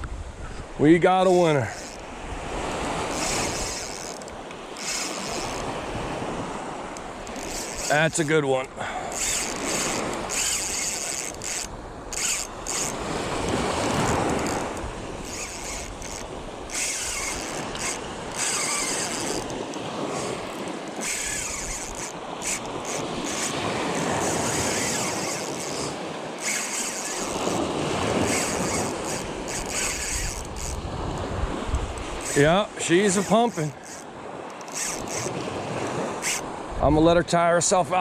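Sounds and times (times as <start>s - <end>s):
surf washing: 0.0s - 38.0s
wind buffeting microphone: 9.0s - 26.6s, 27.2s - 37.3s.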